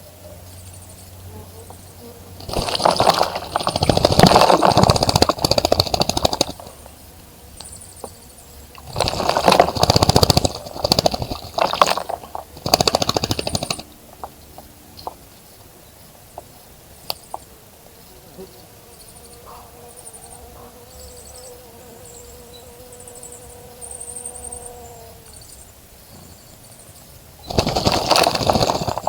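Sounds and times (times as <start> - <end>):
bird splashing in water: 2.4 - 6.9, 8.8 - 13.9, 27.5 - 29.0.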